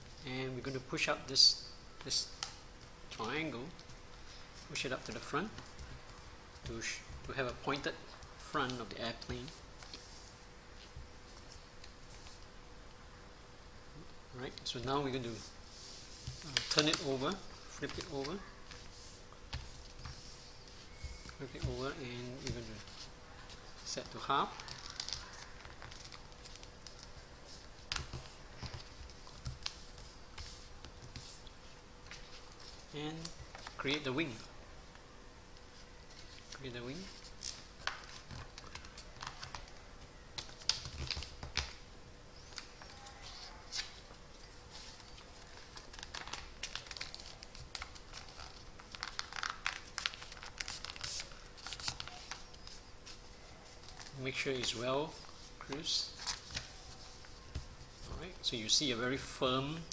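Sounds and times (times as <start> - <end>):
paper rustling while folded: 14.4 - 34.6, 35.6 - 41.8, 42.4 - 59.9.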